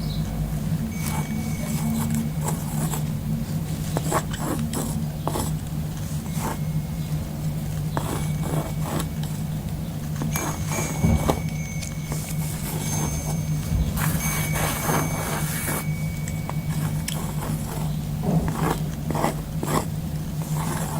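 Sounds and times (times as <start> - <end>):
steady low hum: 0.0 - 20.9
pen scratching on cork: 1.0 - 3.1, 3.8 - 6.7, 7.9 - 9.5, 10.2 - 20.9.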